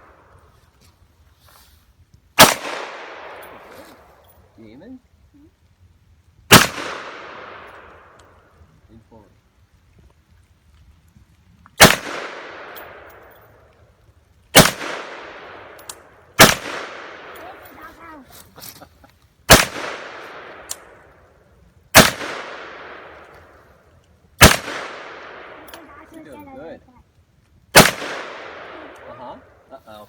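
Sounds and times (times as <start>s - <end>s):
pistol shots echoing: 2.4s - 3.7s, 6.5s - 8.1s, 11.8s - 13.1s, 14.6s - 15.8s, 16.4s - 17.6s, 19.5s - 21.0s, 22.0s - 23.2s, 24.4s - 25.7s, 27.7s - 29.1s.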